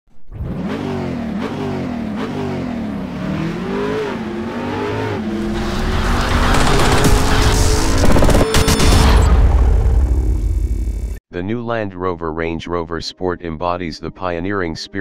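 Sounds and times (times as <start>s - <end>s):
car engine revving: 0.3s - 11.2s
rushing noise: 5.2s - 11.2s.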